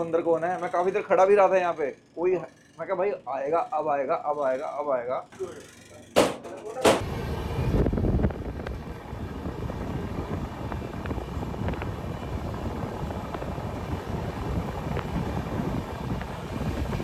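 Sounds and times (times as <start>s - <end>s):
train rumbling on tracks: 7.0s - 17.0s.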